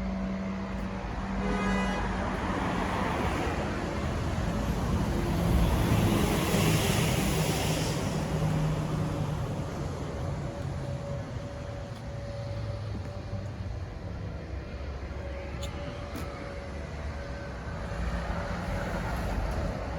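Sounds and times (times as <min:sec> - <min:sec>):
diesel engine running: 0:03.6 - 0:19.9.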